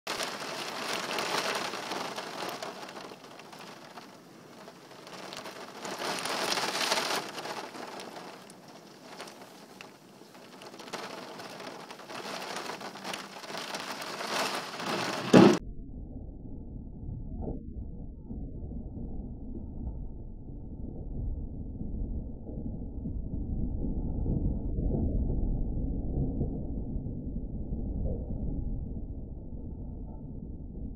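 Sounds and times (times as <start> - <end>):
heavy rain pouring: 0.0 - 15.6
dull low rumble: 10.3 - 30.9
loud short thump: 15.2 - 15.6.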